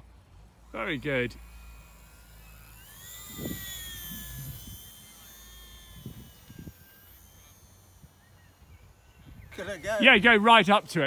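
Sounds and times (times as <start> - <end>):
electric model aeroplane motor whining: 0.0 - 10.8
wind buffeting microphone: 2.8 - 10.4.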